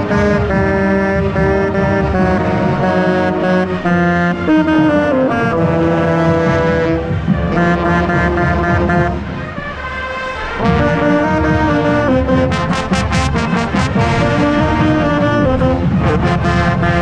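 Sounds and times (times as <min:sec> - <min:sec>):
marching band playing: 0:00.0 - 0:17.0
sharp percussion hits: 0:10.6 - 0:17.0.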